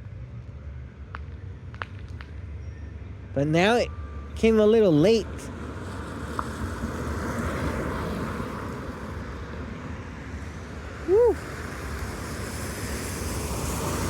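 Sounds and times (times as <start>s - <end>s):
low engine rumble: 0.0s - 14.0s
tyres on wet pavement: 5.0s - 14.0s.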